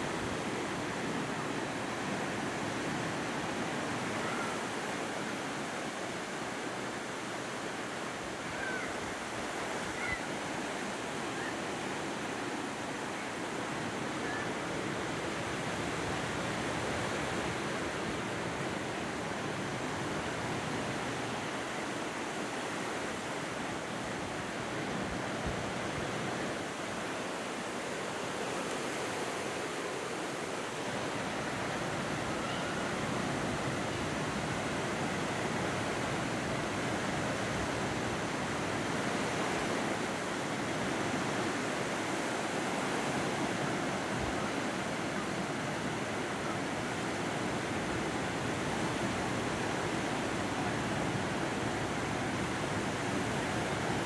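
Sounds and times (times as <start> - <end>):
ocean surf washing onto beach: 0.0 - 54.0.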